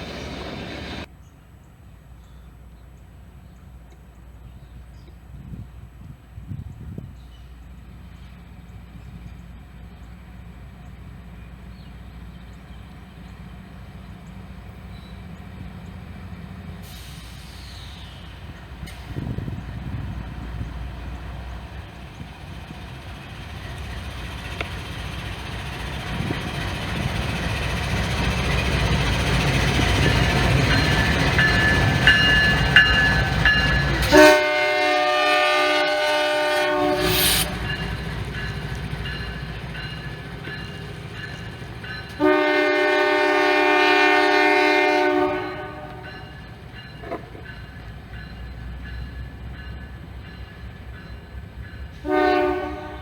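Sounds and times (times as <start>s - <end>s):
low rumble of passing train: 0.0s - 53.0s
locomotive air horn chord: 34.0s - 38.0s, 42.2s - 46.1s, 52.0s - 53.0s
brief high squeals: 35.4s - 38.2s.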